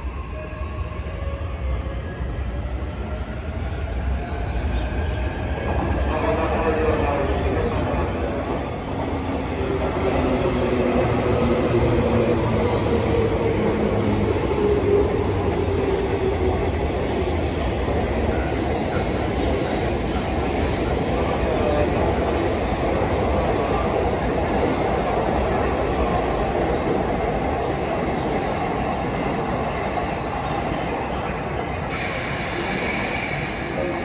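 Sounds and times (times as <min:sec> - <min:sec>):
high wheel squeal: 0:31.9 - 0:34.0.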